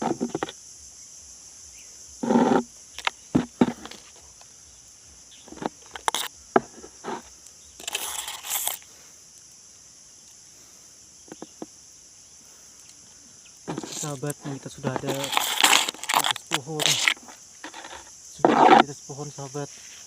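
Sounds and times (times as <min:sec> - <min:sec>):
high-pitched hiss: 0:00.0 - 0:20.0
leaves rustling: 0:01.6 - 0:20.0
twigs snapping: 0:13.6 - 0:18.8.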